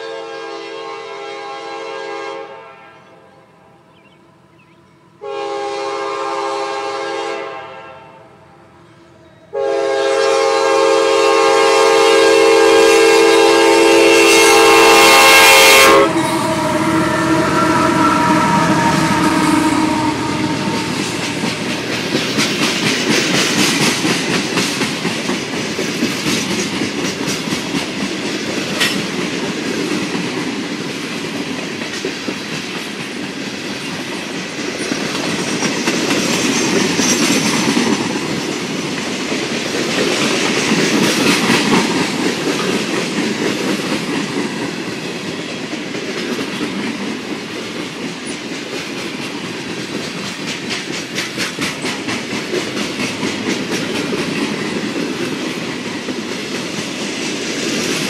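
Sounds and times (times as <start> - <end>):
locomotive horn: 0.0 - 3.6, 5.2 - 8.7, 9.5 - 21.9
freight train rumbling: 0.0 - 58.0
wheels clicking over rail joints: 20.8 - 58.0.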